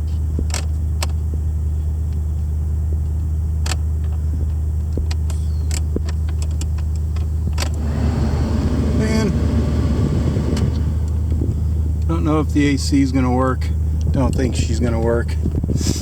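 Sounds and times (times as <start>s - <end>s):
car engine idling: 7.7s - 14.8s.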